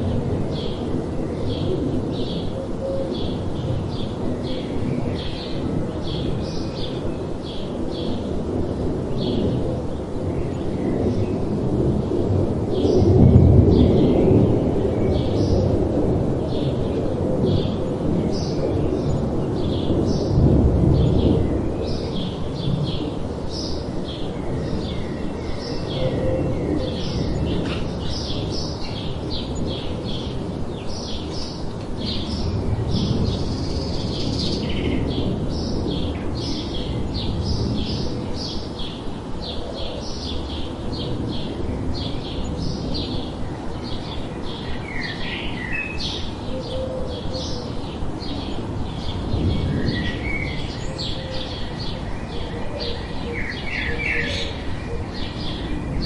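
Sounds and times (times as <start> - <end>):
small birds chirping: 17.5 - 56.0.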